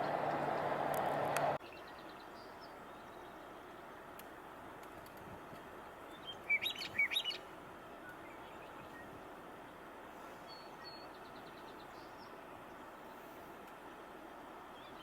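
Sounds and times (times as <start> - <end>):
outdoor background hiss: 0.0 - 15.0
meadowlark fluty gurgling song: 5.9 - 9.8.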